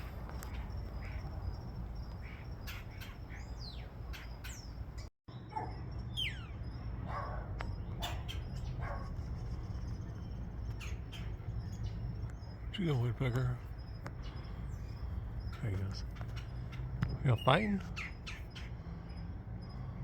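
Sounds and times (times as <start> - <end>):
descending bird whistles: 6.1 - 6.6.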